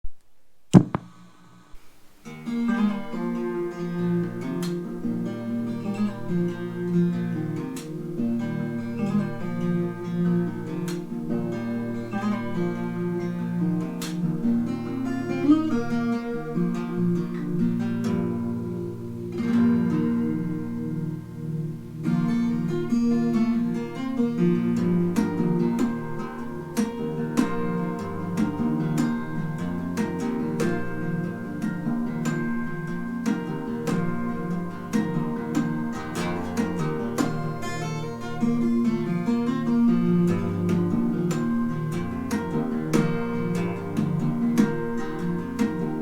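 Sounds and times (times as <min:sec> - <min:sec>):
sharp knock: 0:00.8 - 0:01.3
acoustic guitar strumming: 0:00.8 - 0:46.0.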